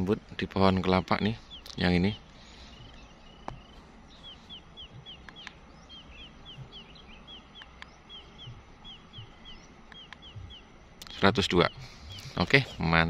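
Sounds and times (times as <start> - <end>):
small bird calling: 0.0 - 13.0
steady outdoor hiss: 0.0 - 13.0
sharp ticks and soft knocks: 2.7 - 12.7.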